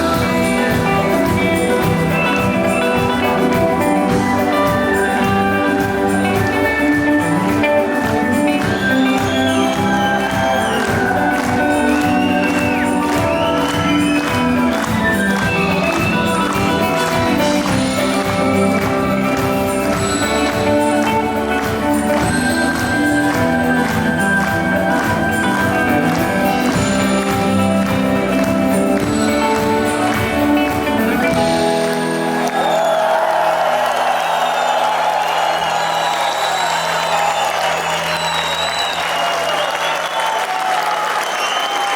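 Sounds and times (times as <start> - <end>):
steady drum beat: 0.0 - 31.9
audience cheering and applause: 0.0 - 41.9
live rock band: 0.0 - 41.9.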